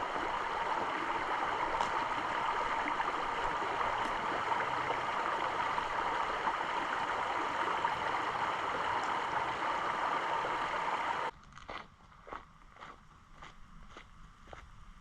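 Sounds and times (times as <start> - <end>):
stream water rushing: 0.0 - 11.3.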